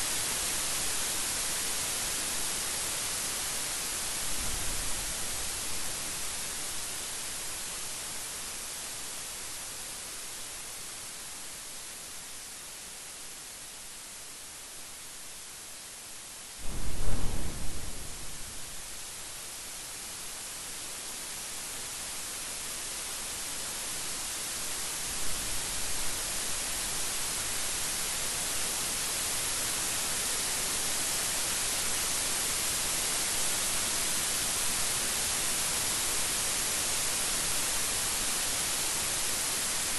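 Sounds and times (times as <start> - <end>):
heavy rain hissing: 0.0 - 13.9, 14.6 - 39.9
thunderclap rumbling: 16.6 - 19.0.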